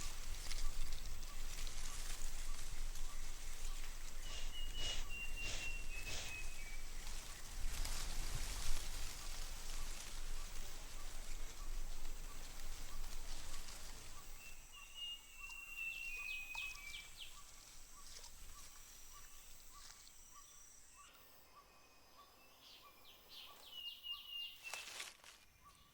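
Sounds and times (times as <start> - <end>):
birds calling and whistling: 0.0 - 8.1, 9.1 - 25.0
rain-like hiss: 0.0 - 20.1
high-pitched insect drone: 4.3 - 6.6, 13.9 - 22.3.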